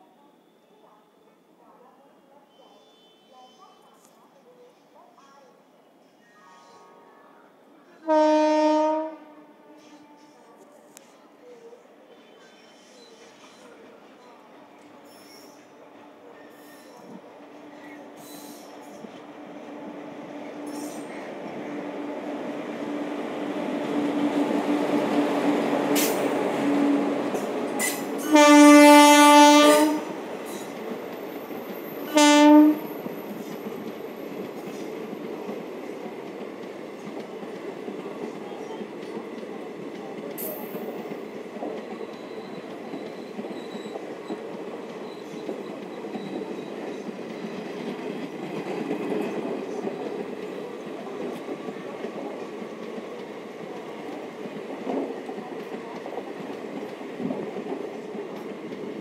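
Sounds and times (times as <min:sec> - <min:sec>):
locomotive horn blasts: 0:08.0 - 0:10.2, 0:28.2 - 0:30.2, 0:32.1 - 0:32.9
train wheels rumbling and clattering: 0:20.5 - 0:59.0.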